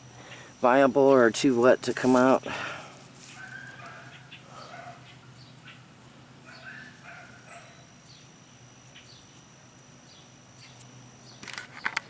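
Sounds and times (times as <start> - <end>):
distant animal calls: 2.5 - 8.0.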